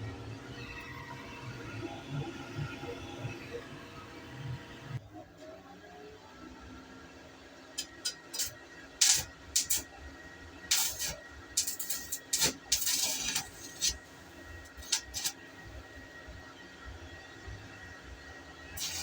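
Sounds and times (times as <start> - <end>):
air hissing from a nozzle: 10.7 - 14.0, 18.8 - 19.0.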